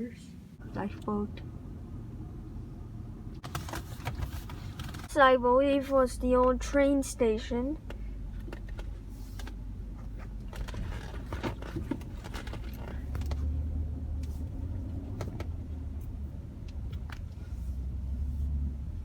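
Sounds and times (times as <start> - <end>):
low vehicle rumble: 0.0 - 19.0.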